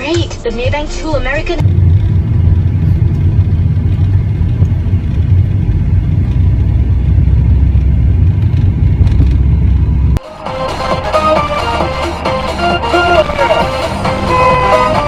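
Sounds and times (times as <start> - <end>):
car rumbling while driving: 0.6 - 10.2.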